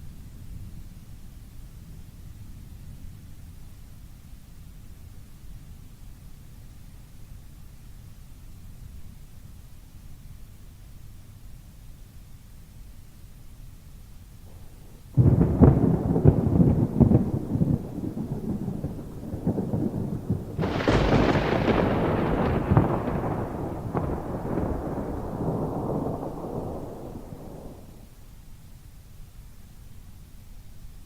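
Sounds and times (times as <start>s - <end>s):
steady rain: 13.9s - 31.0s
thunder crack and rumble: 14.5s - 28.1s.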